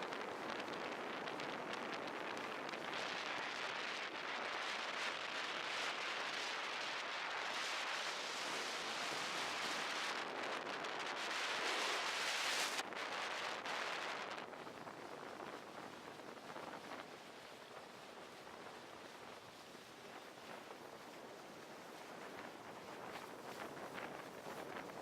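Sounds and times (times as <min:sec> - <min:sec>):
wind rushing on microphone: 0:00.0 - 0:25.0.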